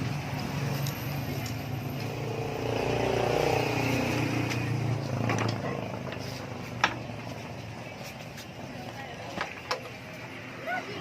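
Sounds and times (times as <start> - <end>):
vehicle engine passing by: 0.0 - 6.8.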